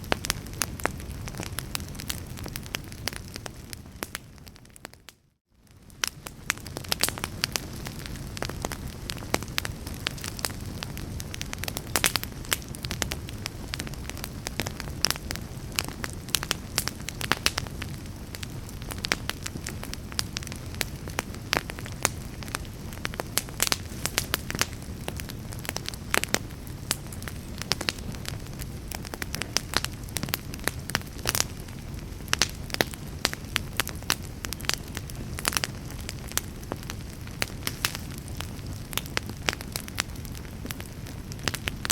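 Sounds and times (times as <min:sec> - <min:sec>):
fire crackling and popping: 0:00.0 - 0:41.9
low rumble of flames: 0:00.0 - 0:41.9.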